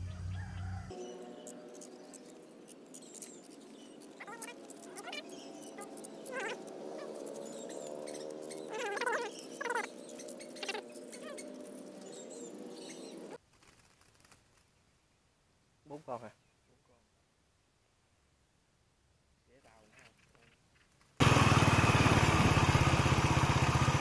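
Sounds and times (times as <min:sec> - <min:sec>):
small birds chirping and squeaking: 0:00.0 - 0:14.9.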